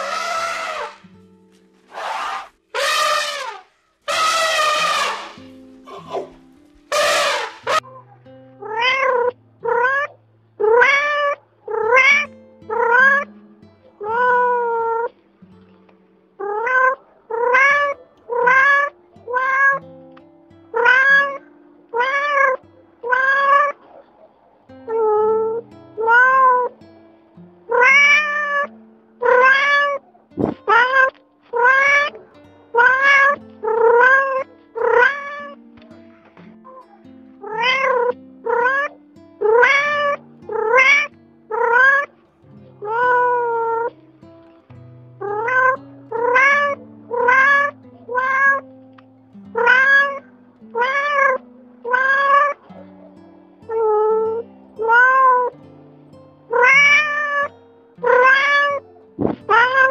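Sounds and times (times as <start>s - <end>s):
cat meowing: 0.0s - 1.0s, 8.6s - 13.3s, 14.0s - 15.1s, 16.4s - 19.8s, 20.7s - 23.8s, 24.9s - 26.7s, 27.7s - 32.2s, 32.8s - 35.6s, 36.8s - 42.1s, 42.8s - 43.9s, 45.3s - 48.6s, 49.6s - 50.2s, 50.8s - 52.8s, 53.7s - 55.5s, 56.5s - 59.9s
soft background music: 4.6s - 59.9s.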